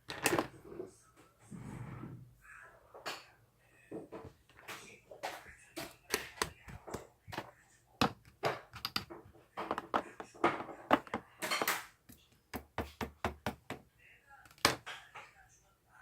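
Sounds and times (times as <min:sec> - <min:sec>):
objects clicking and knocking: 0:00.0 - 0:00.6, 0:04.2 - 0:13.8.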